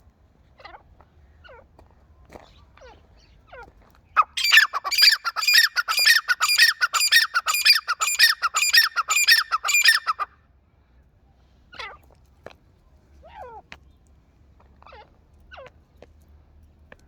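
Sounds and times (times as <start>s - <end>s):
bird squawking calls: 4.2s - 10.3s.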